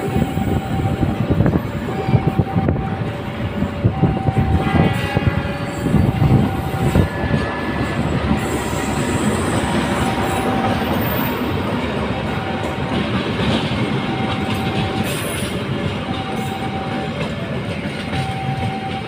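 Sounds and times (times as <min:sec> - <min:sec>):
train rumbling past: 0:00.0 - 0:19.0
wheels squealing on rails: 0:00.0 - 0:19.0.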